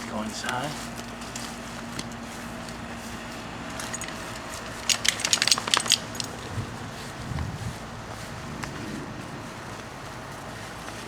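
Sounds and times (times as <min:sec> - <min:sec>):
metallic clinks and rattles: 0:03.7 - 0:06.6.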